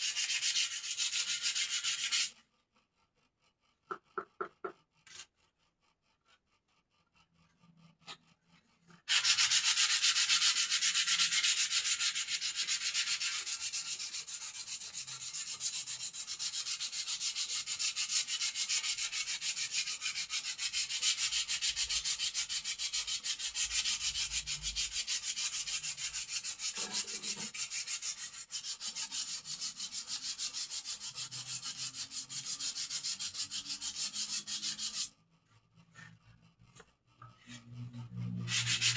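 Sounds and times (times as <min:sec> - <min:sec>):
sanding rubbing strokes: 0:00.0 - 0:02.4, 0:09.1 - 0:35.2, 0:37.8 - 0:38.9.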